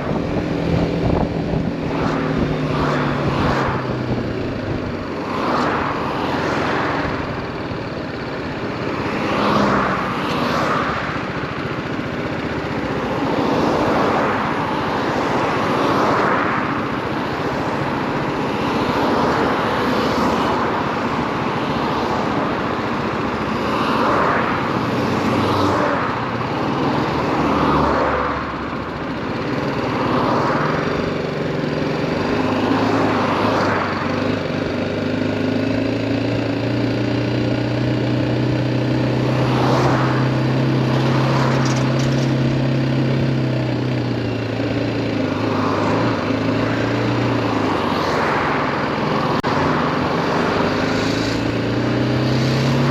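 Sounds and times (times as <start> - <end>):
wind noise: 0.0 - 4.9
motorcycle engine revving: 0.0 - 52.9.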